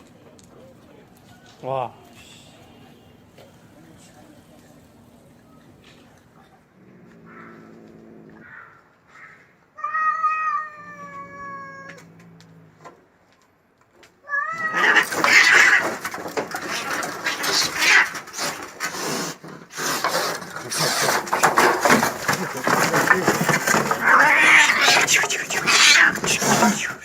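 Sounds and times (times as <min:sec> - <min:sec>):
cat growling: 0:06.7 - 0:08.6, 0:09.8 - 0:12.8, 0:14.3 - 0:27.0
cat yowling: 0:09.8 - 0:12.1, 0:14.2 - 0:15.9, 0:24.0 - 0:27.0
cats screeching and hissing: 0:09.8 - 0:12.5, 0:14.2 - 0:27.0.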